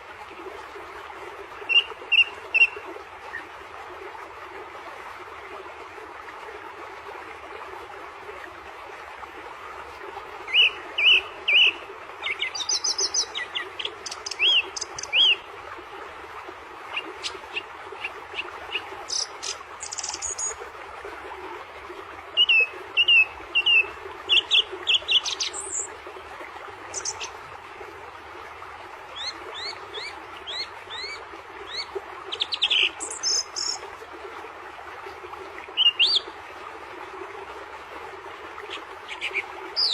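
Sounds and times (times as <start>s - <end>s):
small birds chirping: 26.9s - 27.3s.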